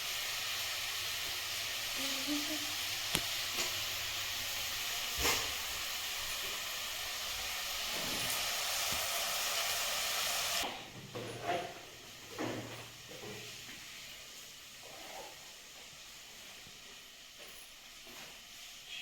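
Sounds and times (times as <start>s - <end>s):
stove hissing: 0.0s - 11.0s.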